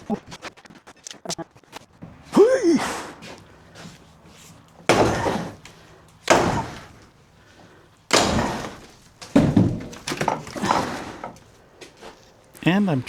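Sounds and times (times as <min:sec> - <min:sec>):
heavy bangs on a doorway: 0:02.0 - 0:12.2.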